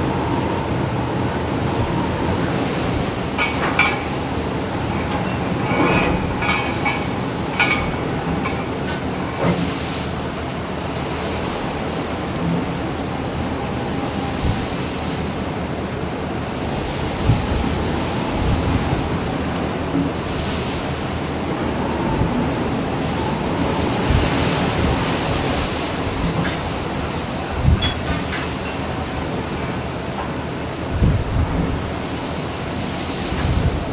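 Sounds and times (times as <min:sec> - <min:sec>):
sea waves breaking around ship: 0:00.0 - 0:33.9
wind buffeting microphone: 0:12.8 - 0:28.4, 0:30.8 - 0:32.1, 0:33.2 - 0:33.9.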